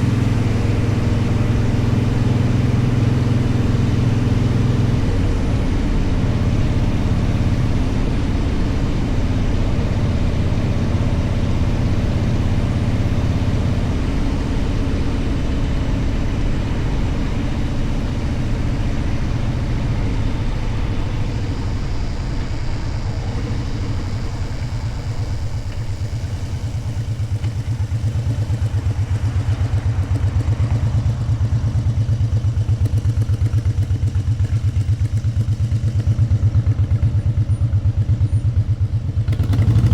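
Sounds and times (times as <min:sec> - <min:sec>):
wind noise: 0:00.0 - 0:31.7
motorcycle engine running: 0:00.0 - 0:39.9.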